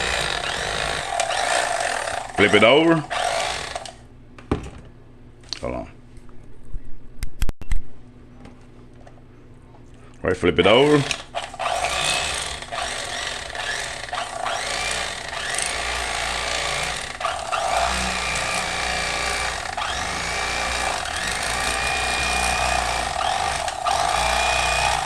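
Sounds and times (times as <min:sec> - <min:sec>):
electric knife buzzing: 0:00.0 - 0:04.0, 0:10.8 - 0:25.0.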